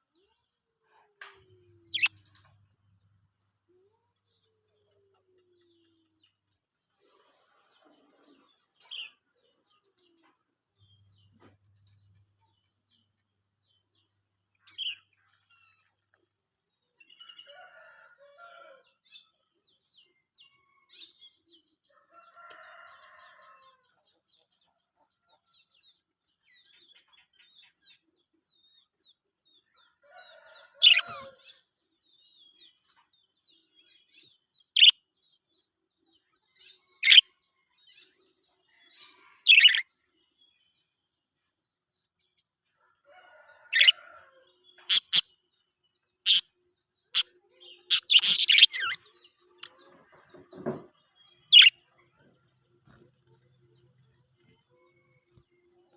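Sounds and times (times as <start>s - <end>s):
budgerigars chirping: 44.9s - 45.2s, 47.9s - 49.0s
soft warbling chatter: 47.2s - 50.2s.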